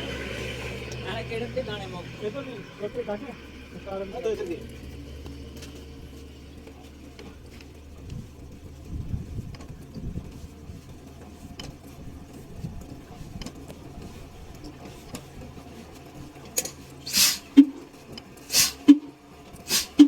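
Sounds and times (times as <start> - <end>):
diesel engine running: 0.0 - 20.0
loud hissing bursts: 17.1 - 17.5, 18.5 - 18.9, 19.7 - 20.0.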